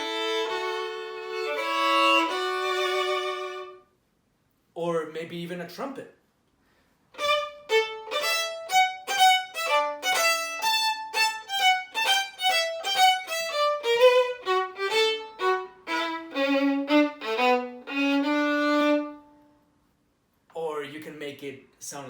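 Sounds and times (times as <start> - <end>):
violin playing short notes: 0.0 - 3.8, 7.2 - 19.4.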